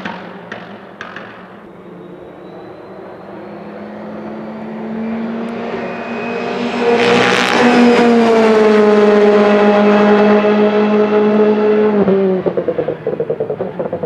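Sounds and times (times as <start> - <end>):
rally car engine approaching: 1.6 - 14.0.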